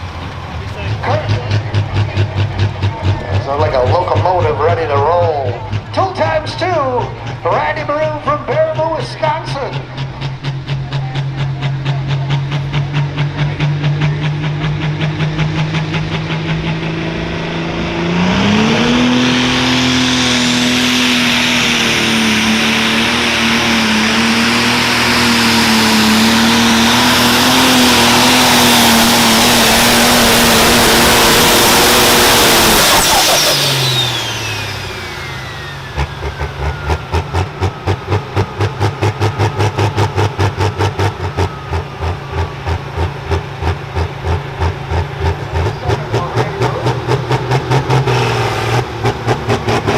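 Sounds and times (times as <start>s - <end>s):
diesel engine revving: 0.0s - 49.9s
turbo whistle winding down: 18.3s - 43.2s.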